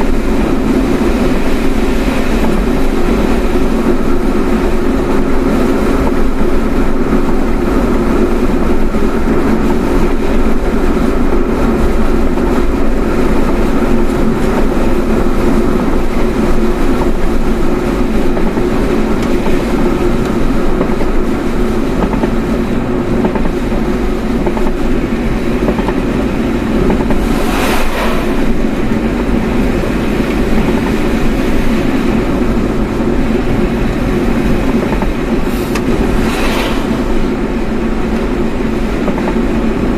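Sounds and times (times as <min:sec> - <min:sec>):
road and engine noise inside car: 0:00.0 - 0:39.9
brief rushing sound: 0:26.9 - 0:29.4, 0:35.5 - 0:37.5.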